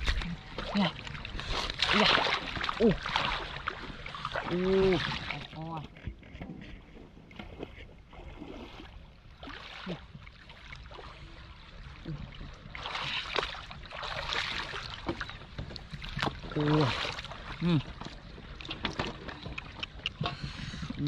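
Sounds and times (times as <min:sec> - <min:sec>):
water splashing and sloshing: 0:00.0 - 0:21.0.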